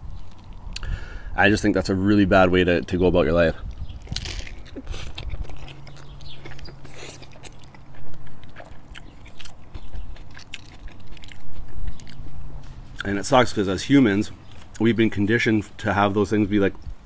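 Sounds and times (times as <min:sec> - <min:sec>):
wet chewing and mouth smacks: 0:00.1 - 0:00.9, 0:03.6 - 0:13.2.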